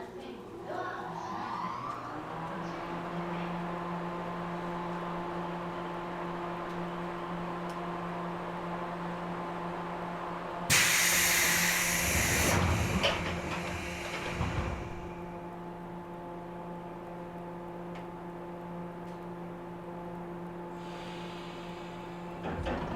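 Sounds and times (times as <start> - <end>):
train equipment hum: 1.9 - 22.9
compressed air hiss: 10.7 - 15.1.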